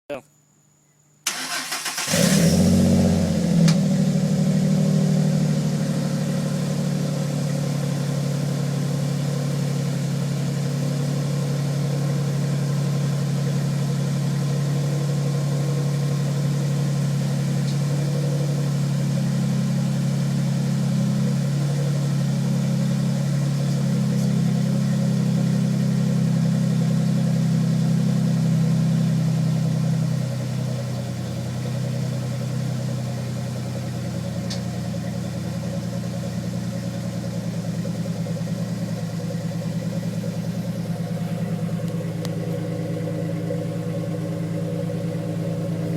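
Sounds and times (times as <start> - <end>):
truck engine idling: 1.3 - 45.9.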